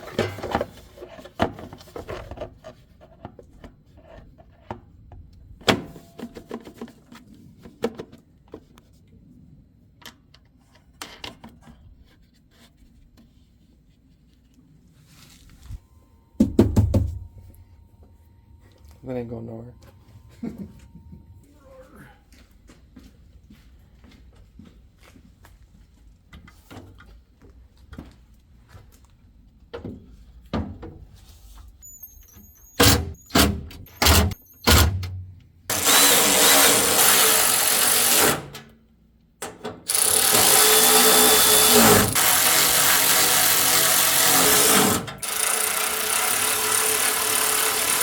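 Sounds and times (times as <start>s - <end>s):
power drill running: 32.0s - 38.6s, 39.9s - 48.0s.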